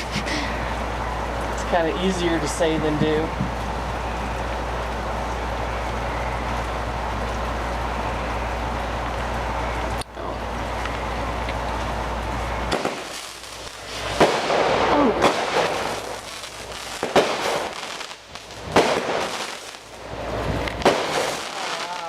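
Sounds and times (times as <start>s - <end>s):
firework crackling: 0.0s - 22.0s
firework bangs: 12.6s - 22.0s.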